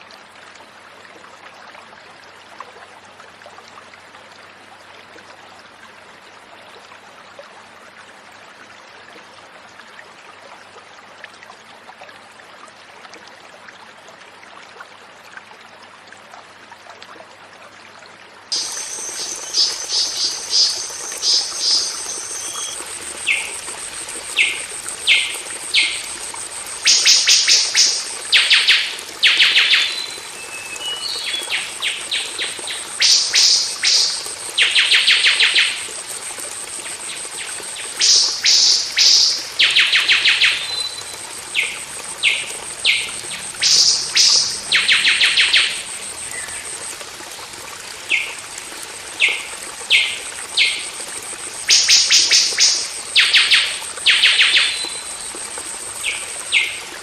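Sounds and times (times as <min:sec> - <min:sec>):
bird calling harsh notes: 0:18.6 - 0:23.6
thin high tone: 0:18.6 - 0:28.9.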